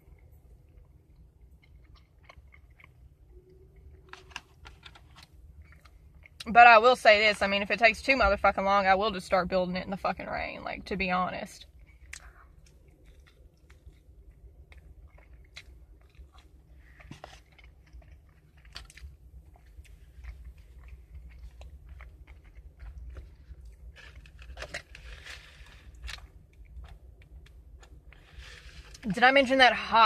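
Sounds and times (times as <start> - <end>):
person chewing fast food: 0.0 - 6.4, 11.6 - 29.0
steady low hum: 0.0 - 30.0.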